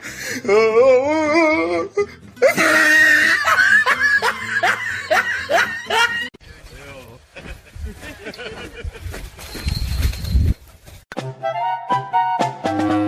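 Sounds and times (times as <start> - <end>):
person laughing hard: 2.4 - 6.3, 7.4 - 9.2.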